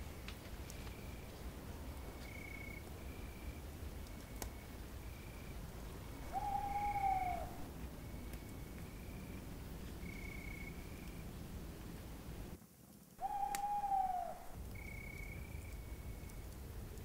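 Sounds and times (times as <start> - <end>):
crickets chirping: 0.0 - 12.6, 13.2 - 17.0
owl hooting: 6.2 - 7.7, 13.2 - 15.2.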